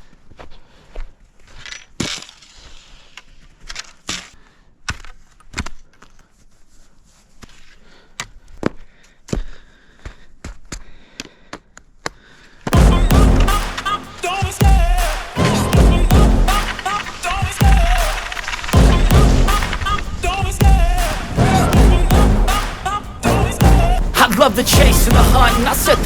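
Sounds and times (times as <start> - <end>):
loud music: 12.8 - 26.0.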